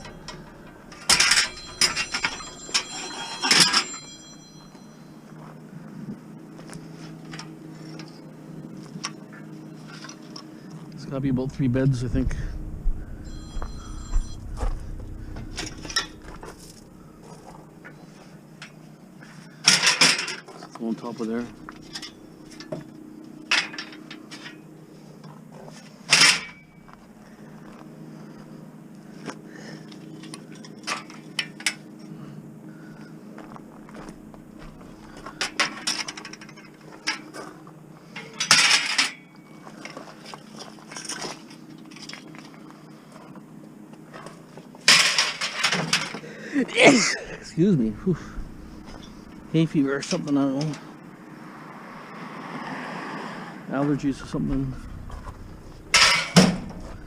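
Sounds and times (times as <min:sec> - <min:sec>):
loud metal clatter: 0:00.0 - 0:04.2, 0:12.3 - 0:17.8, 0:54.7 - 0:57.0
metal parts clinking: 0:00.0 - 0:04.4, 0:13.2 - 0:17.6, 0:21.5 - 0:22.7, 0:54.8 - 0:57.0
metal bed frames clanking: 0:00.0 - 0:04.6, 0:12.6 - 0:17.7, 0:54.4 - 0:57.0
high ringing tone: 0:00.0 - 0:05.7, 0:11.4 - 0:18.3, 0:21.1 - 0:23.4, 0:26.4 - 0:27.4, 0:47.2 - 0:49.7, 0:54.4 - 0:57.0.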